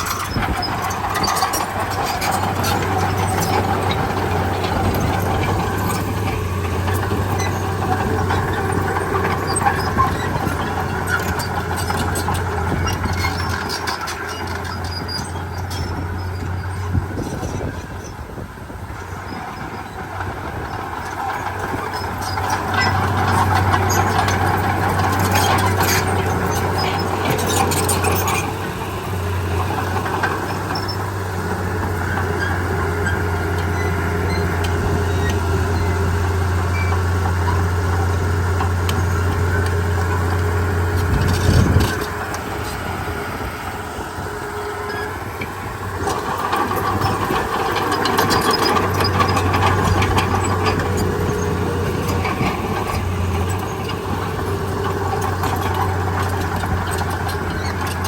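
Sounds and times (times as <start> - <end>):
bulldozer diesel engine droning: 0.0 - 58.0
loud clatter: 20.8 - 44.2
metallic clanks and rattles: 31.8 - 43.6, 44.9 - 58.0.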